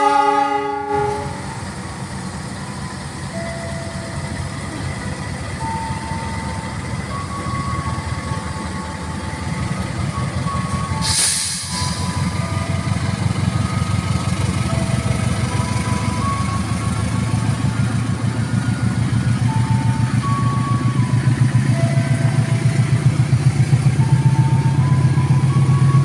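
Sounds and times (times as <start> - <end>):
locomotive engine rumble: 0.0 - 26.0
loud hiss: 11.0 - 12.4.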